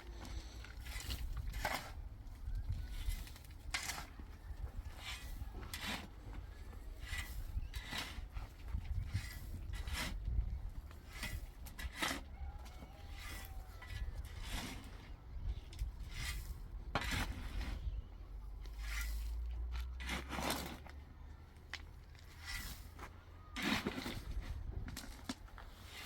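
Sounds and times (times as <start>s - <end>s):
hard object scraping rough surface: 2.6s - 12.3s, 13.1s - 15.1s, 16.0s - 17.9s, 18.7s - 19.4s, 20.0s - 20.9s, 22.3s - 26.0s.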